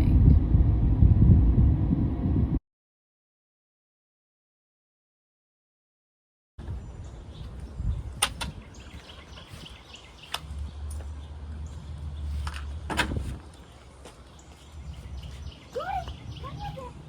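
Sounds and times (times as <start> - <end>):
low rumble: 0.0 - 2.6
faint bird chirps: 6.7 - 10.6.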